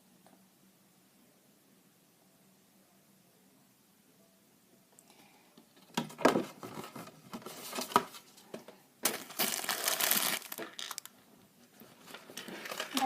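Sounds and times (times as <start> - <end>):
packaging crinkling: 9.0 - 11.1.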